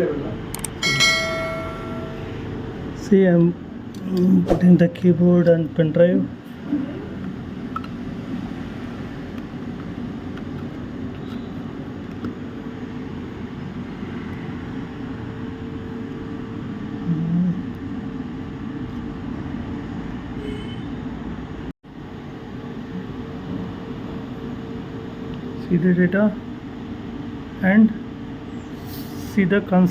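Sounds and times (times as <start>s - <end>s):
faint steady hum: 0.0s - 4.4s
fan low mechanical rumble: 0.0s - 29.9s.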